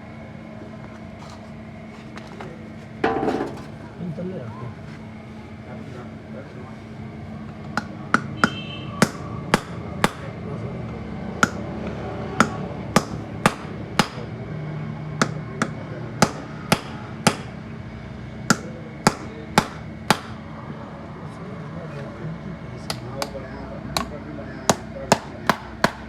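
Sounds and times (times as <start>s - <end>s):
hammer striking metal: 3.0s - 3.8s, 7.8s - 10.4s, 11.4s - 11.7s, 12.4s - 14.3s, 15.2s - 17.6s, 18.5s - 20.4s, 24.0s - 26.0s.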